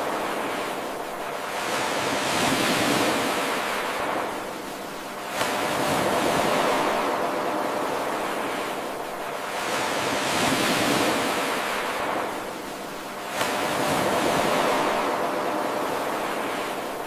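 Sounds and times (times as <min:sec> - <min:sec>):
ocean waves washing in: 0:00.0 - 0:17.0.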